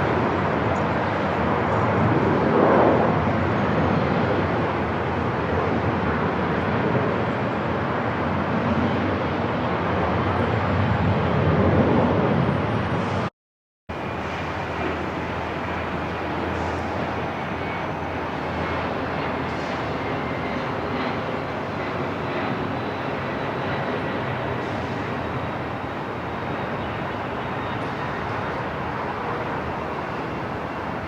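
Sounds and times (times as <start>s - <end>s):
airport ambience: 13.9s - 31.0s.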